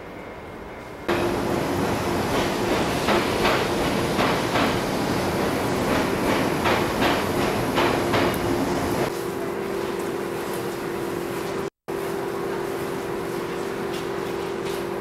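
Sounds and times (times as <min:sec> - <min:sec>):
train rumbling along track: 0:00.0 - 0:09.1
train wheels clacking over rail joints: 0:01.1 - 0:09.0.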